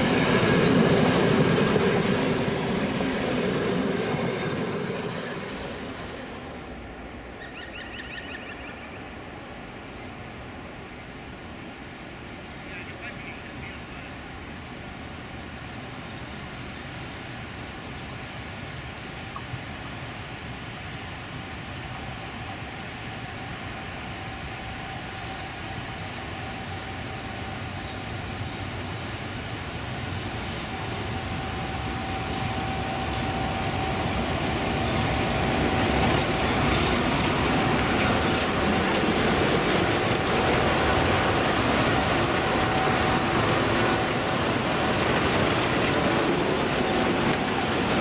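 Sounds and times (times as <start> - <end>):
train wheels rumbling: 0.0 - 7.4, 20.6 - 48.0.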